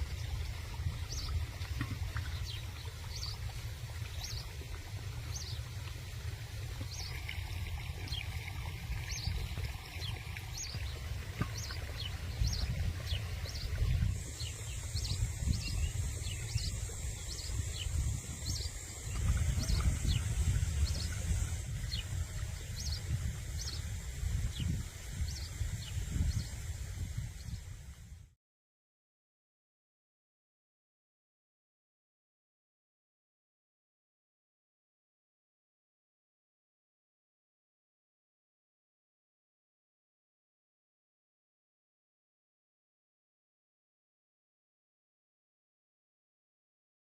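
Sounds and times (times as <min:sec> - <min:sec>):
birds chirping: 0:00.1 - 0:06.0, 0:06.8 - 0:26.6.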